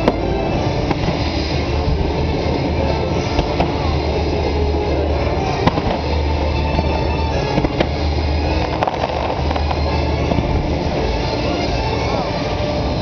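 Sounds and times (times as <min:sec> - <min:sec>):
sharp firework bangs: 0:00.0 - 0:01.8, 0:05.5 - 0:10.7
fireworks barrage: 0:00.0 - 0:13.0
show music: 0:00.0 - 0:13.0.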